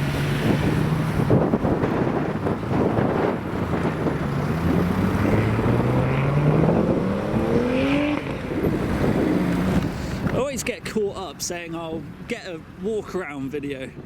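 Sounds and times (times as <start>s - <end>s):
car engine accelerating: 0.0s - 10.4s.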